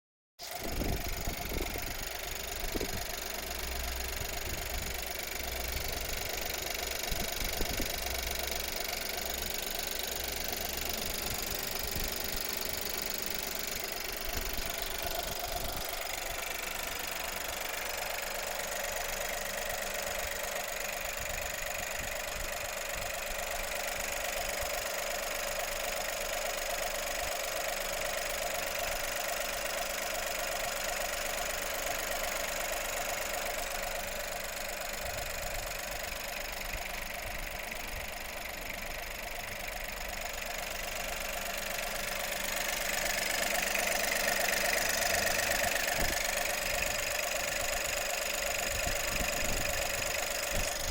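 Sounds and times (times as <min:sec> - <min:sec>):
car engine idling: 0:00.4 - 0:50.9
engine rattle and squeak: 0:00.4 - 0:50.9
engine squeak: 0:42.9 - 0:50.9.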